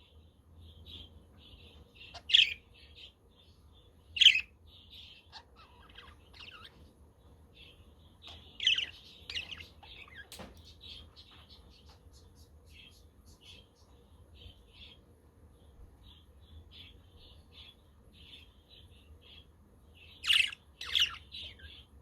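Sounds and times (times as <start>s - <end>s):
budgies chattering and warbling: 0.0s - 22.0s
sharp budgie calls: 0.9s - 3.2s, 4.2s - 6.8s, 7.6s - 11.9s, 16.1s - 21.9s.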